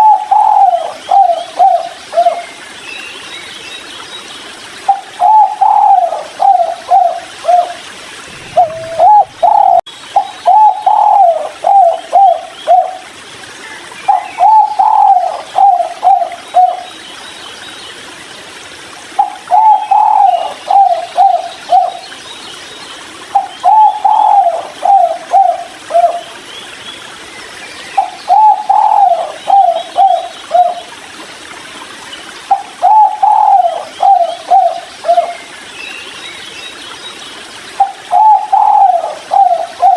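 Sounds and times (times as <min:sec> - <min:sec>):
dove cooing: 0:00.0 - 0:02.4, 0:04.9 - 0:13.0, 0:14.1 - 0:16.8, 0:19.2 - 0:22.0, 0:23.4 - 0:26.2, 0:28.0 - 0:30.8, 0:32.5 - 0:35.4, 0:37.8 - 0:39.9.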